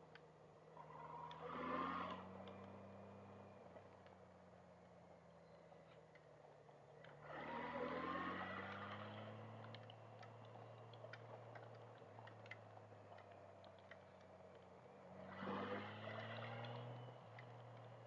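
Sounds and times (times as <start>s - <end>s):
faint muffled motorcycle engine: 0.0s - 18.0s.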